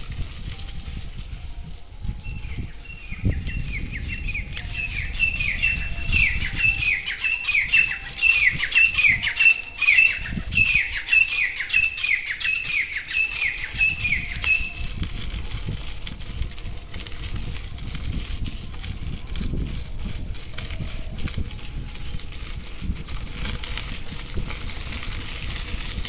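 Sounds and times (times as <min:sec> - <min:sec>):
bicycle tyres rolling on dirt path: 0:00.0 - 0:26.0
bird calling: 0:02.2 - 0:15.0.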